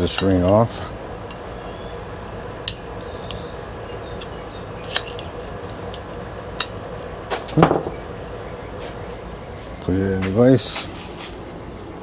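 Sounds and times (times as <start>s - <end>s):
faint steady hum: 0.0s - 12.0s
metal clinks: 2.6s - 8.1s.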